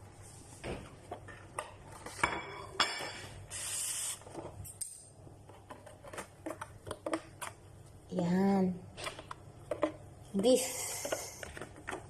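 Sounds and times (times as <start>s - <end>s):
short hiss: 3.5s - 4.2s.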